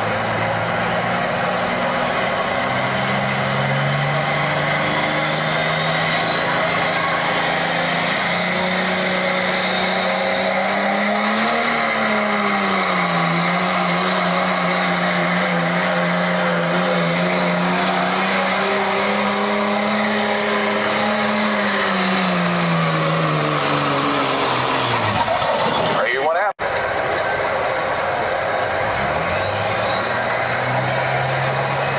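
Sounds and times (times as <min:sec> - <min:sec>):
pickup truck engine under load: 0:00.0 - 0:31.9
high whistle: 0:28.9 - 0:31.0.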